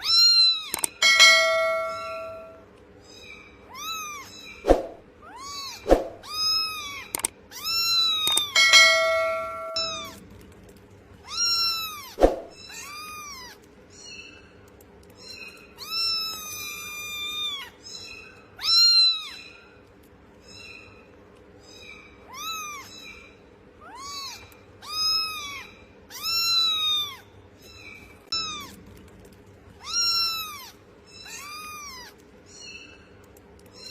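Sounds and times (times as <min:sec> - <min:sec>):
cat meowing: 0:05.2 - 0:10.1, 0:22.2 - 0:23.0, 0:23.8 - 0:27.2, 0:29.8 - 0:32.2.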